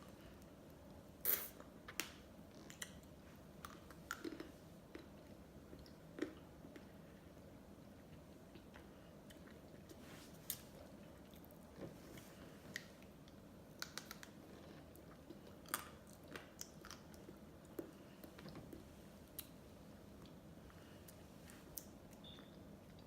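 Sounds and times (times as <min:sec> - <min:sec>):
wet mouth smacks and clicks: 0:13.8 - 0:14.3.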